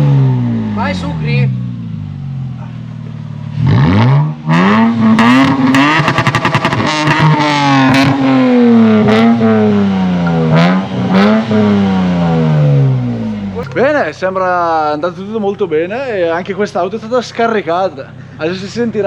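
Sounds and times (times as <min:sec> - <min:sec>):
car engine revving: 0:00.0 - 0:19.0
rapid stuttering exhaust burst: 0:03.5 - 0:13.2.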